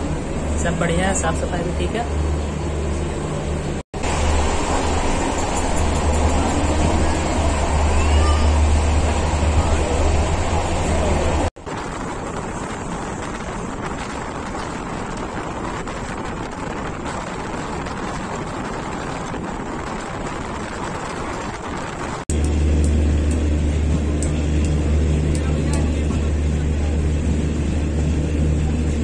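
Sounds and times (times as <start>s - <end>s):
moving train running noise: 0.0s - 29.0s
deep steady hum: 22.3s - 29.0s.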